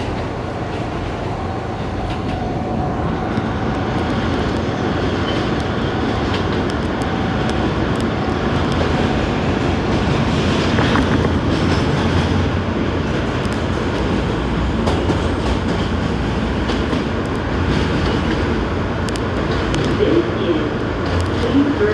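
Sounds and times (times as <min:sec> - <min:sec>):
track clicks: 0:00.0 - 0:12.4, 0:19.0 - 0:20.2
subway car rumbling on rails: 0:00.0 - 0:21.9.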